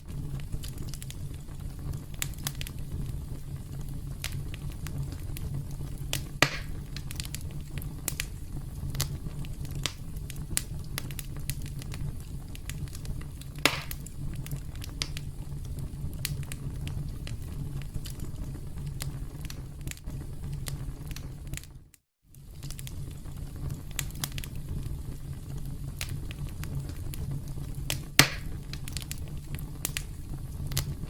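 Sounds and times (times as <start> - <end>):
campfire crackling: 0.0 - 31.0
wood snapping and popping: 6.1 - 7.4, 13.6 - 14.1, 27.9 - 30.1.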